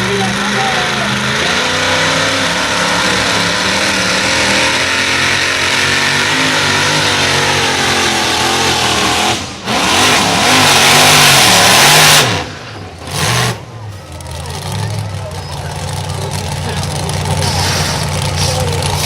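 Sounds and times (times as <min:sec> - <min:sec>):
tractor engine at full throttle: 0:00.0 - 0:19.0.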